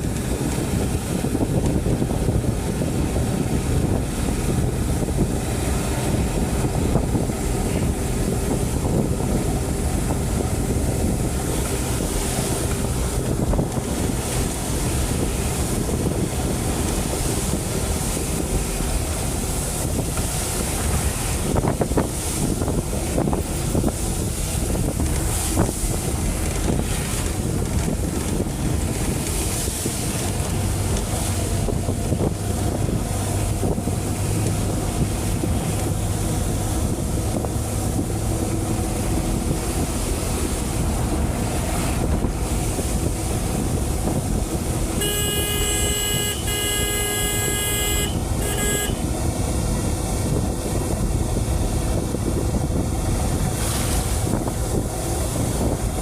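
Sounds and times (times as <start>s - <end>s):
heavy rain: 0.0s - 56.0s
horn-like tone: 45.0s - 49.1s.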